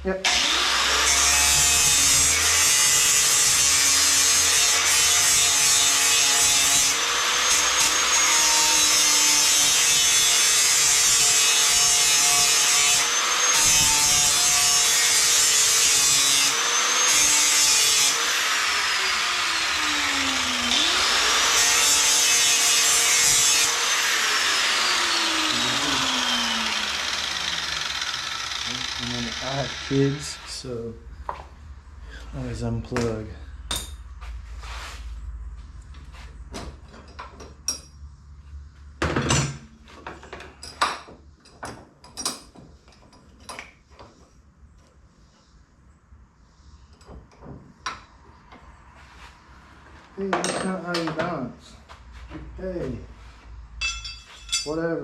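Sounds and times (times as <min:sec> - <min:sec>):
electric grinder motor whine: 0:00.3 - 0:30.5
grinder hissing on metal blade: 0:00.3 - 0:30.8.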